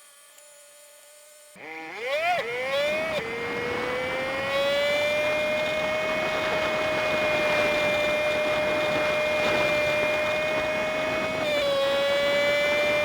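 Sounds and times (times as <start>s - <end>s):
high-pitched engine whine: 1.6s - 13.0s
wind and road noise hiss: 3.2s - 13.0s.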